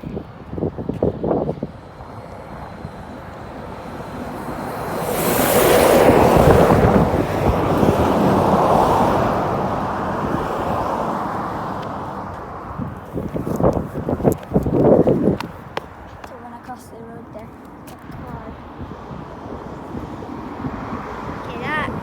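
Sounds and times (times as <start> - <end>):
wind buffeting microphone: 0.0 - 22.0
vehicle driving past: 3.0 - 12.9.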